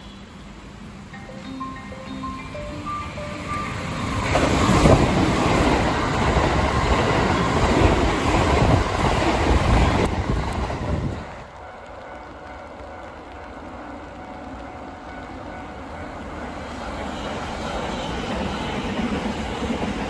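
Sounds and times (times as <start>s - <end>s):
train wheels on rail: 0.0s - 20.0s
rushing air: 2.8s - 11.6s.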